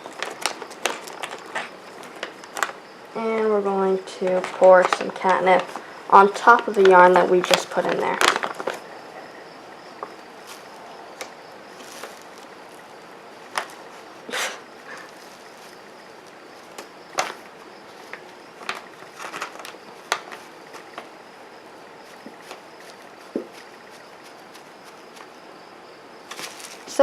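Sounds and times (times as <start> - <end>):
bag rustling: 10.1 - 21.1, 26.3 - 27.0.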